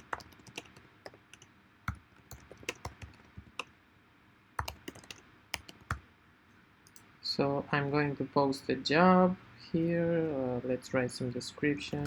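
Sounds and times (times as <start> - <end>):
computer keyboard clicks: 0.0 - 3.7, 4.6 - 6.0.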